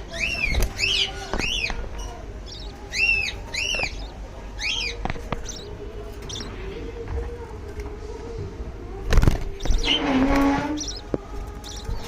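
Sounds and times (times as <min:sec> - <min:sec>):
lovebirds calling: 0:00.0 - 0:07.0, 0:09.2 - 0:12.0.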